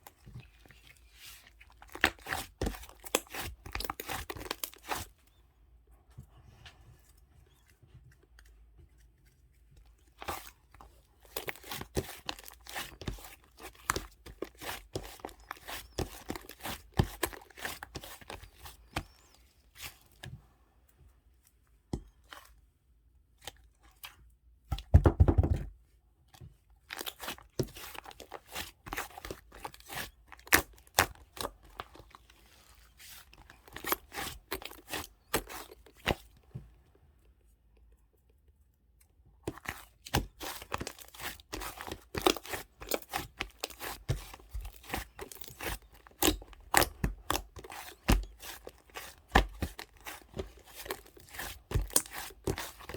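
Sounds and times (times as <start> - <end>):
crinkling tearing and clicking: 39.5 - 52.9.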